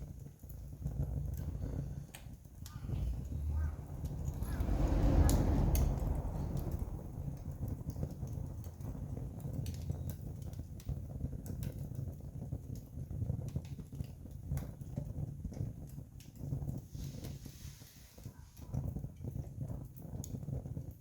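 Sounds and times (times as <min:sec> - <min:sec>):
campfire crackling: 0:00.0 - 0:21.0
low rumble: 0:00.7 - 0:11.4.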